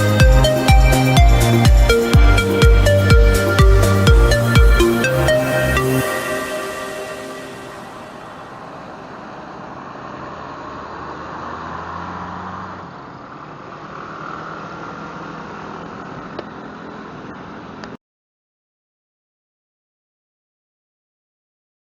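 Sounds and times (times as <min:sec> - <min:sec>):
road traffic: 0:00.0 - 0:18.0
low engine hum: 0:06.7 - 0:18.0.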